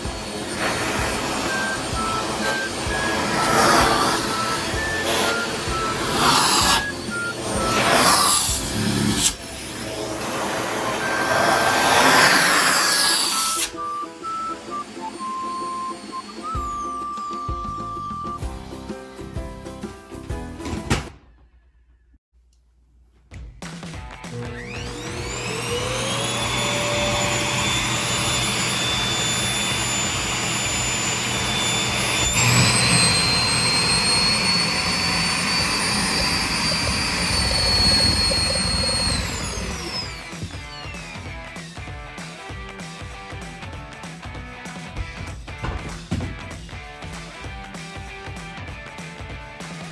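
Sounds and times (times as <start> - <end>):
vacuum cleaner running: 0.0 - 18.8, 24.3 - 42.5
electronic tones music: 13.5 - 18.5.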